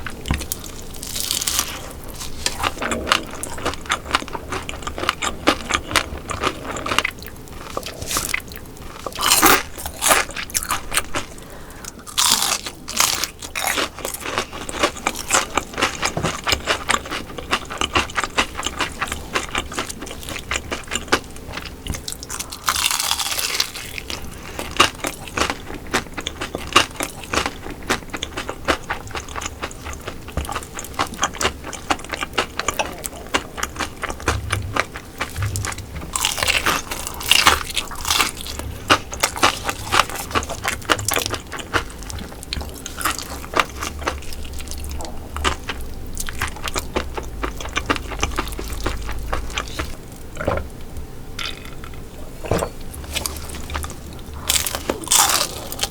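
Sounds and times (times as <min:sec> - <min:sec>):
chewing with crackling clicks: 0:00.0 - 0:52.0
crunching bites: 0:00.3 - 0:11.3, 0:53.0 - 0:55.9.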